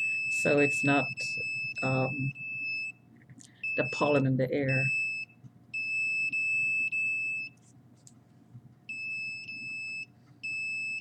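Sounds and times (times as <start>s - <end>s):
electronic beeper long beeps: 0.0s - 2.9s.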